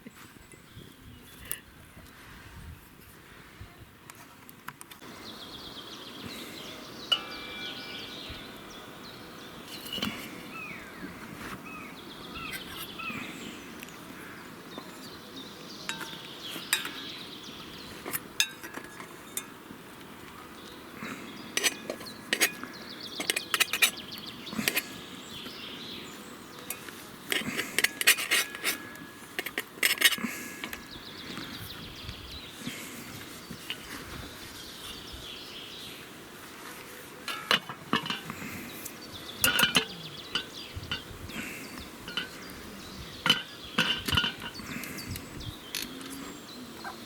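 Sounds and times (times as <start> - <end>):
birds chirping faintly: 3.6 - 47.0
metal dishes clinking: 7.1 - 8.0, 15.9 - 17.1, 18.1 - 19.6, 21.6 - 24.0, 26.7 - 30.8, 37.3 - 38.4, 39.4 - 42.5, 43.2 - 44.6.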